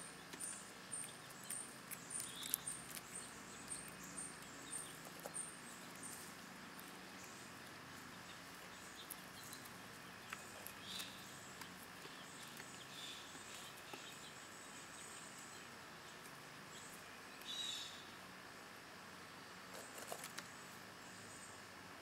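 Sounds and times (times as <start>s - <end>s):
faint bird chirps: 7.1s - 18.2s.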